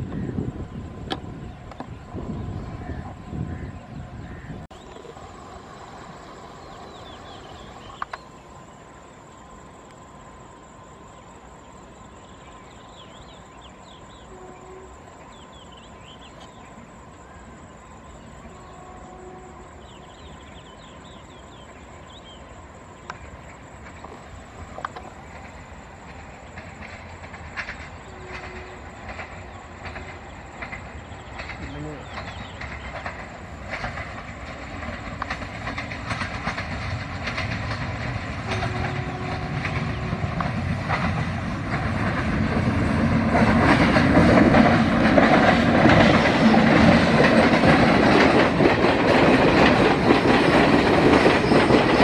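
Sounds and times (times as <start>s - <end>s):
train rumbling: 0.0s - 52.0s
wheels clicking on rails: 23.0s - 52.0s.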